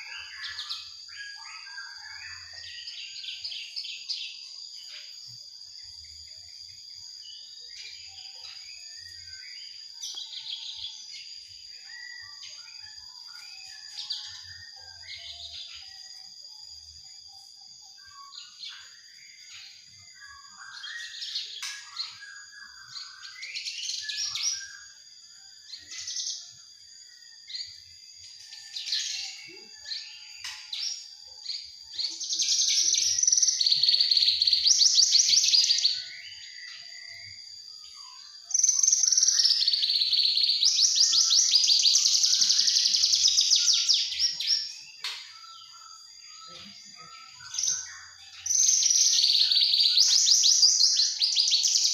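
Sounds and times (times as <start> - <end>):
bird chirping and trilling: 0.0 - 5.2, 27.5 - 51.9.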